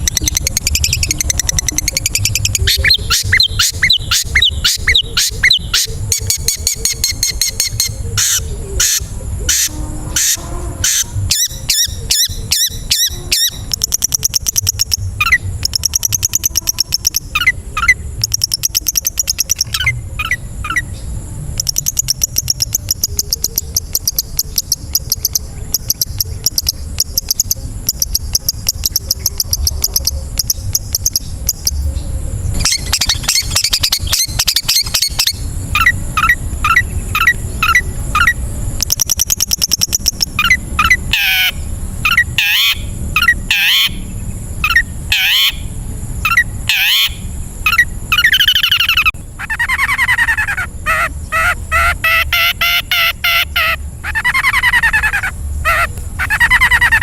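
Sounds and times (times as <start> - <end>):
low background rumble: 0.0 - 57.0
bird high chips: 32.6 - 45.6, 46.3 - 57.0.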